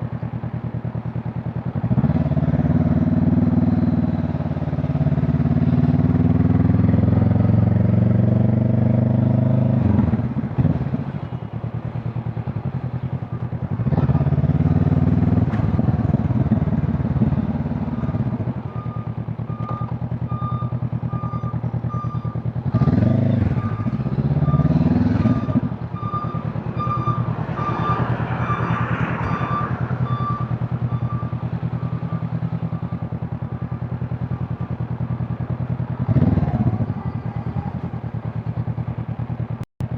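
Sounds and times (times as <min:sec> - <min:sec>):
motorcycle engine revving through gears: 0:01.1 - 0:11.1, 0:12.4 - 0:39.9
high electronic beep: 0:18.8 - 0:33.0.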